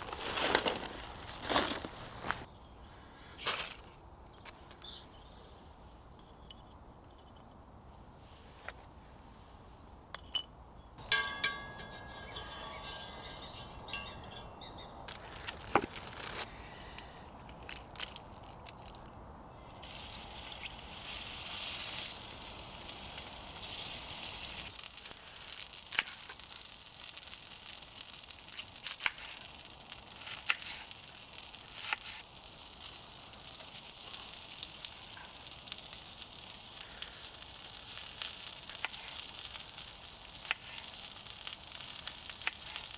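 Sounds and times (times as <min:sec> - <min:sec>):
meat sizzling over campfire: 0:15.2 - 0:42.9.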